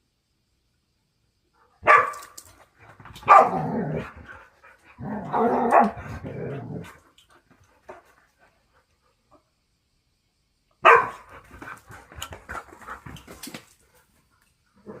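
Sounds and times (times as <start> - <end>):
dog barking: 1.8 - 2.4, 3.2 - 3.6, 5.6 - 6.0, 10.8 - 11.3
dogs scuffling in play: 11.3 - 14.2.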